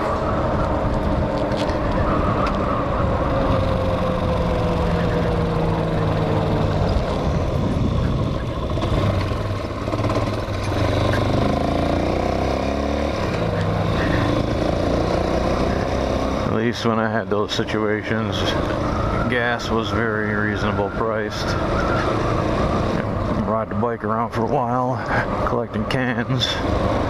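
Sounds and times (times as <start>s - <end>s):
motorcycle engine running: 0.1s - 16.6s.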